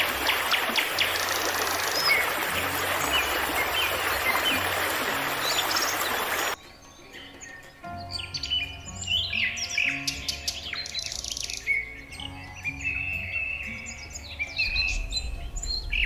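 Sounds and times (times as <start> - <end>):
rushing water: 0.0 - 6.6, 13.6 - 16.0
small birds chirping: 0.0 - 16.0
low steady hum: 14.6 - 16.0.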